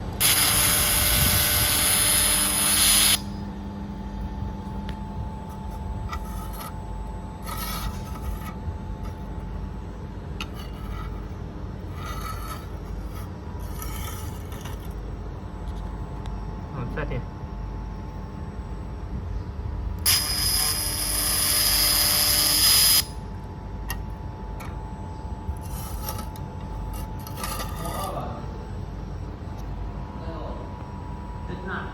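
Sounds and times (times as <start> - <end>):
welding machine hiss and whine: 0.0 - 17.2, 20.0 - 30.2
low machine hum: 0.0 - 31.9
welding machine hiss: 0.2 - 3.3, 20.1 - 23.2
machine humming: 20.0 - 31.9.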